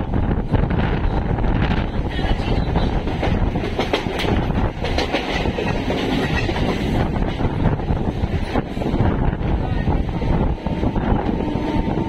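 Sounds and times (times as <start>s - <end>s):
train rumble and air rush: 0.0s - 12.0s
wheels clicking over rail joints: 2.1s - 7.6s.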